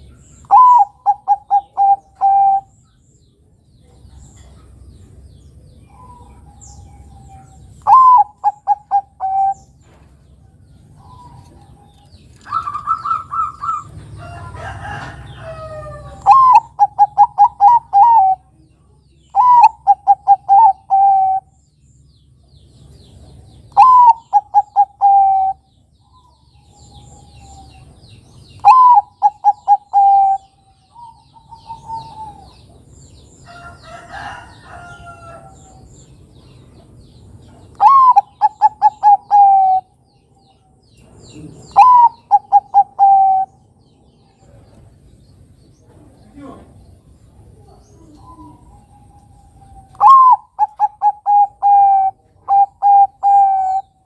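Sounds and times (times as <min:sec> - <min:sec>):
dove cooing: 0:00.0 - 0:02.7, 0:05.9 - 0:09.7, 0:11.0 - 0:18.6, 0:19.3 - 0:21.6, 0:23.7 - 0:28.0, 0:28.6 - 0:32.8, 0:37.7 - 0:39.9, 0:41.4 - 0:43.6, 0:47.5 - 0:54.0.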